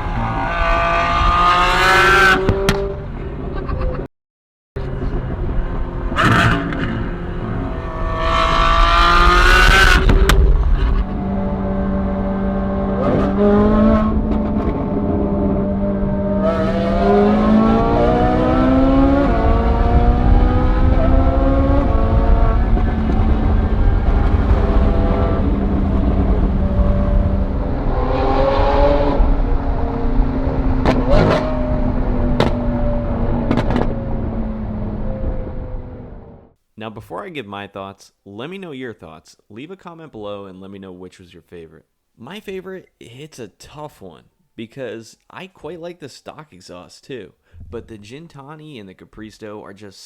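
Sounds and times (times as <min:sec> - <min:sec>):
sports car engine revving: 0:00.0 - 0:03.1, 0:05.0 - 0:36.4
road and wind noise: 0:00.0 - 0:04.1, 0:04.8 - 0:36.6, 0:47.5 - 0:48.0.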